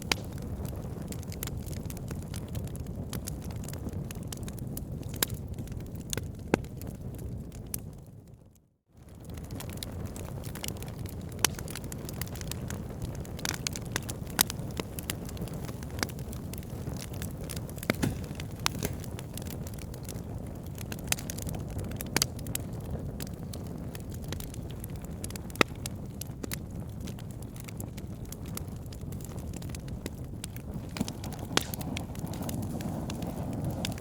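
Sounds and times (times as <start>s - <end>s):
logs crackling and popping: 0.0s - 8.1s, 9.0s - 34.0s
fire flames rumbling: 0.0s - 34.0s
loud wood snaps: 17.0s - 19.6s, 30.9s - 32.5s.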